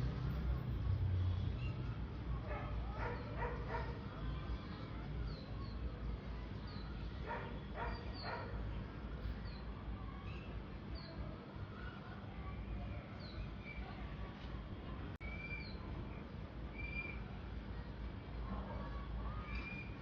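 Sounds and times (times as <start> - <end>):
low outdoor rumble: 0.0 - 20.0
small birds chirping: 1.4 - 14.3, 15.2 - 18.3
dog barking: 2.4 - 4.0, 7.3 - 8.6.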